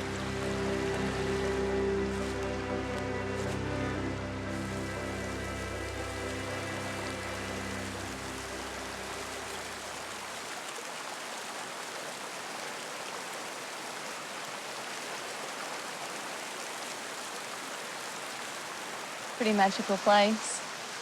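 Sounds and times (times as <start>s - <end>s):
music: 0.0s - 10.1s
waterfall rushing: 0.0s - 21.0s.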